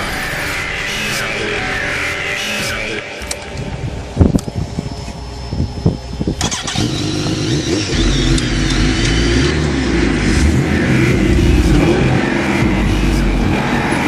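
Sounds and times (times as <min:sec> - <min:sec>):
loud rushing noise: 0:05.7 - 0:14.0
engine revving hard: 0:06.4 - 0:14.0.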